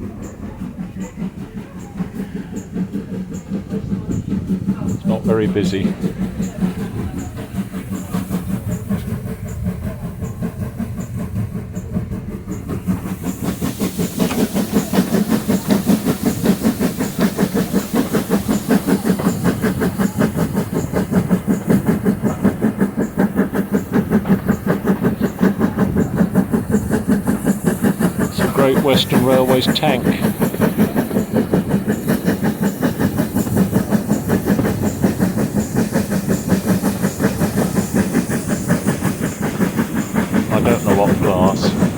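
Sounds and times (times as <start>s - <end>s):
steam locomotive exhaust beats: 0.0s - 41.9s
wheels clattering on rails: 5.9s - 41.9s.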